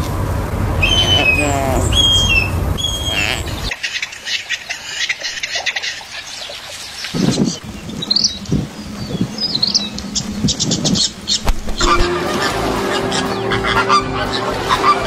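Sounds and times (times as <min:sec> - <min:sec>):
whistled bird note: 0:00.8 - 0:03.8, 0:07.2 - 0:15.0
bird chirps: 0:00.8 - 0:12.1
birds squawking: 0:00.8 - 0:15.0.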